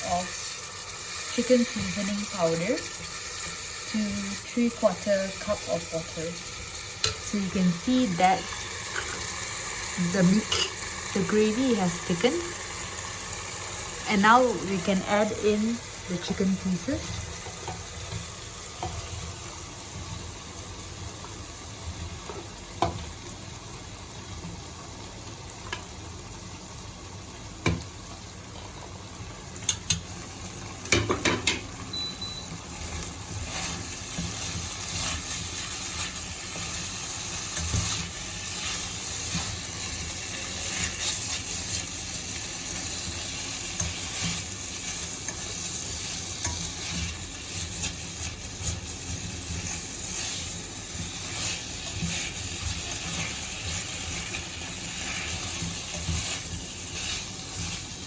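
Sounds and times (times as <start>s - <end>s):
chicken sizzling in a pan: 0.0s - 58.0s
utensil clicking against pan: 29.6s - 30.0s.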